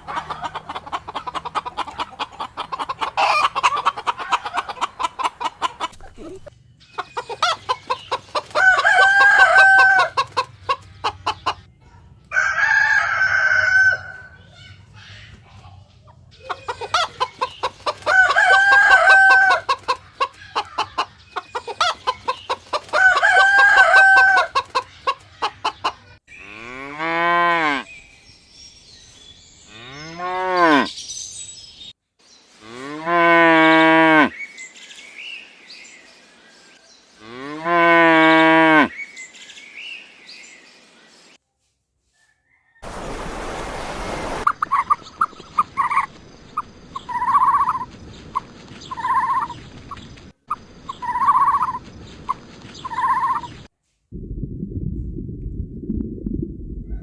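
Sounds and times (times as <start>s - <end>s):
stuttering fowl calls: 0.0s - 6.4s, 42.6s - 53.6s
cow mooing: 26.4s - 27.8s, 37.2s - 38.9s
hiss burst: 42.9s - 44.5s.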